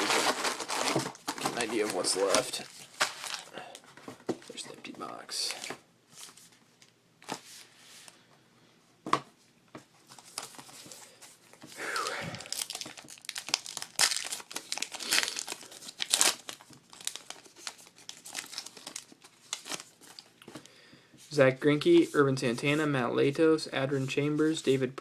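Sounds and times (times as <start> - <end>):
foil wrapper tearing: 12.0 - 20.3
foil wrapper crackling: 12.3 - 20.4.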